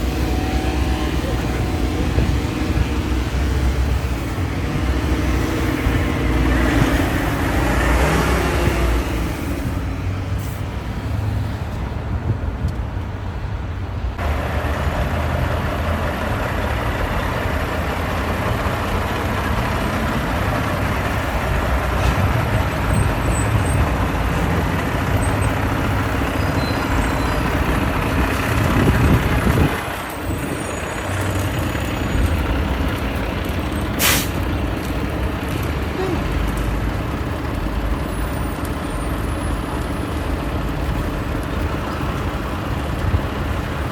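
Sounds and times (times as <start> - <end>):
engine revving: 0.0 - 9.7
heavy trucks and machinery running: 0.0 - 43.9
short sharp hiss: 34.0 - 34.4.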